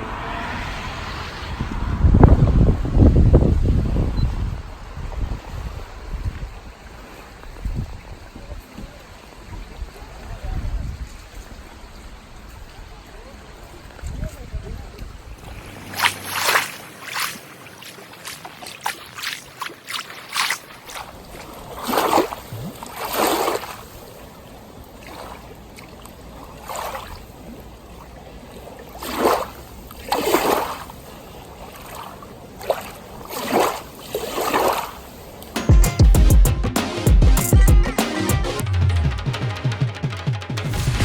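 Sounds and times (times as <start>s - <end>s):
water lapping and splashing: 4.6s - 35.6s.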